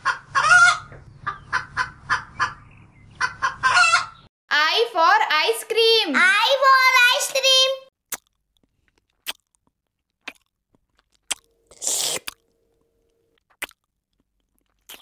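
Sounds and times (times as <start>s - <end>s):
mouth clicks while eating: 8.1s - 12.5s, 13.4s - 15.0s
crunchy bite of ice cream cone: 8.1s - 12.8s, 13.4s - 15.0s.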